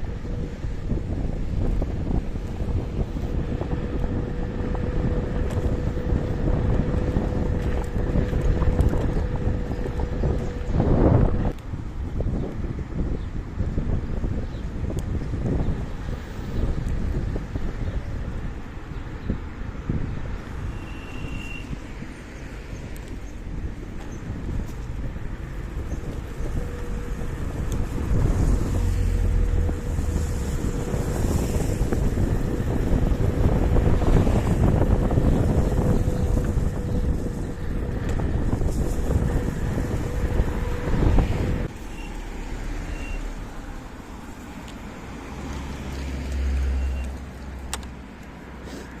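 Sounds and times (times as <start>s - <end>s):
electric scooter whine: 0.0s - 48.3s
tyre and road noise: 0.0s - 49.0s
wind buffeting microphone: 0.0s - 49.0s.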